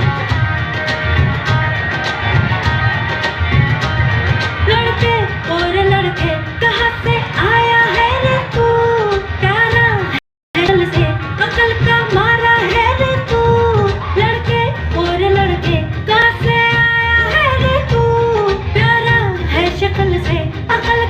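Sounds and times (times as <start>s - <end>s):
woman singing over a beat: 4.6s - 21.0s.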